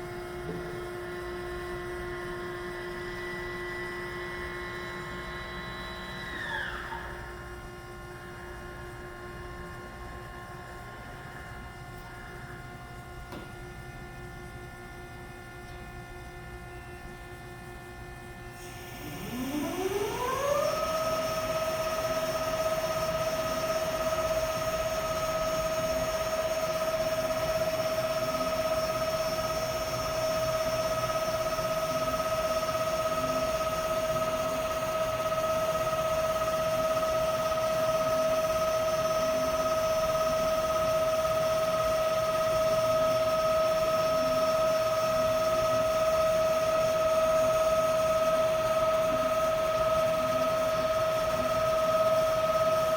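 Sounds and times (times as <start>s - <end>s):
band saw motor whine: 2.9s - 7.5s.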